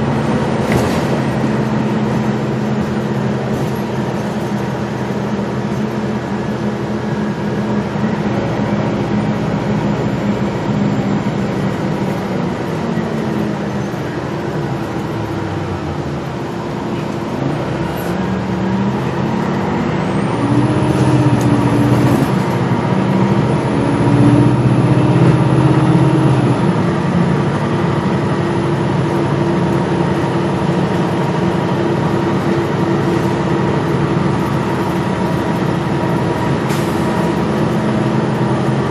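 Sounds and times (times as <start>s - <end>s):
bus engine accelerating: 0.0s - 38.9s.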